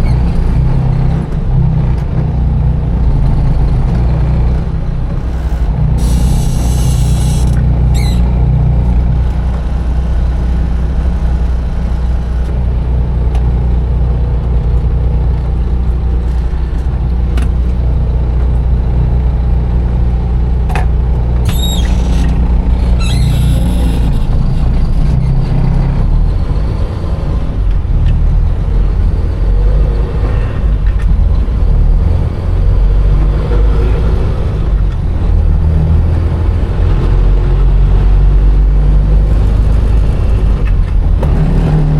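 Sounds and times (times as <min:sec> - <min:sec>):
diesel truck engine rumbling: 0:00.0 - 0:41.9
short high squeaks: 0:05.4 - 0:08.5, 0:21.4 - 0:25.5.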